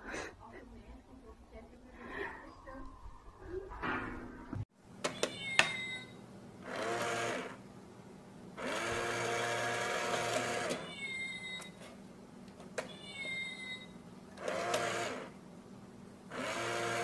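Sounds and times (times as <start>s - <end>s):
small electric motor running: 6.6s - 7.6s, 8.6s - 10.8s, 14.4s - 15.3s, 16.3s - 17.0s.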